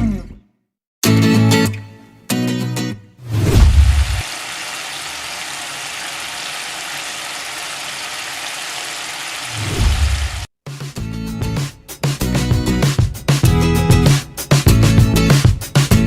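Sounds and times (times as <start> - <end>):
food sizzling in hot oil: 3.6 - 10.5.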